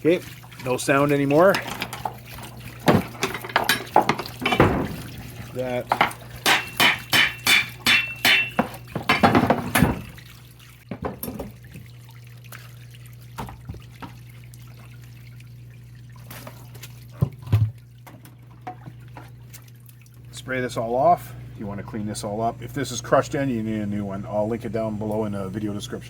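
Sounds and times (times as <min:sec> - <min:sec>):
steady low hum: 0:00.0 - 0:26.0
wrench striking metal housing: 0:06.5 - 0:09.2.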